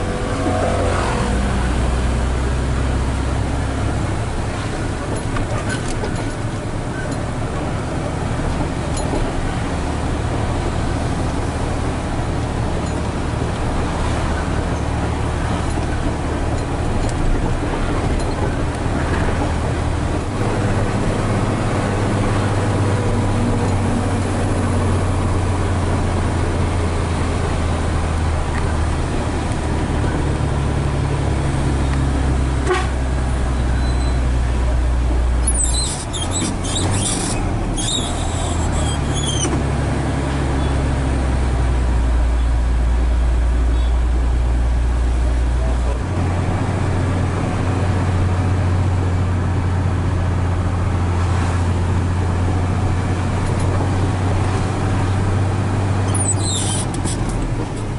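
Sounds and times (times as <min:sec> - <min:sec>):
truck diesel engine drone: 0:00.0 - 0:57.9
high squeal: 0:33.6 - 0:34.3, 0:35.4 - 0:39.6, 0:56.1 - 0:57.2.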